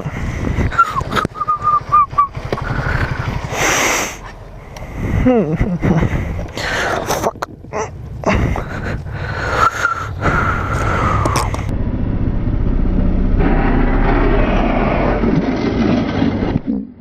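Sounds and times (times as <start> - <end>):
wind noise: 0.0 - 3.9, 4.8 - 11.9
motorcycle engine running: 0.1 - 14.6.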